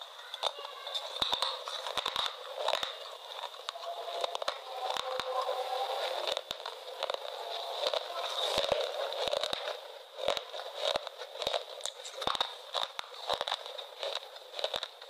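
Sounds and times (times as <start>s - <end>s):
crunchy chewing of crisp food: 0.0s - 15.0s.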